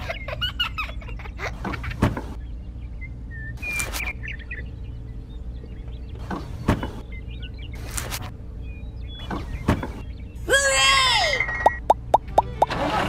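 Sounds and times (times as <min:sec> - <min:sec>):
small birds chirping: 0:00.0 - 0:12.7
brief rustle: 0:03.7 - 0:04.1, 0:07.8 - 0:08.3.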